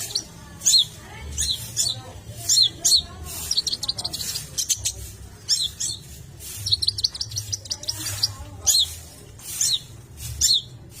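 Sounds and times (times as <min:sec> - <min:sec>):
shrike singing: 0:00.0 - 0:10.8.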